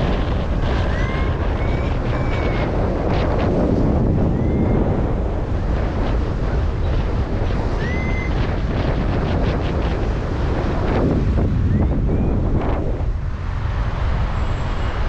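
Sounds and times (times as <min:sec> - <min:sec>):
wind buffeting microphone: 0:00.0 - 0:15.0
faint rising whistling tones: 0:04.2 - 0:04.9, 0:07.8 - 0:08.5, 0:11.6 - 0:13.0.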